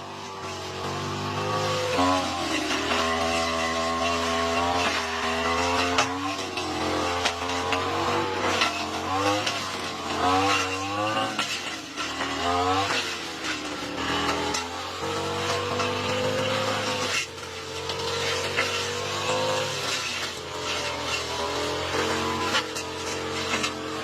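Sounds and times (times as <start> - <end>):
lawn mower engine under load: 0.0 - 24.0.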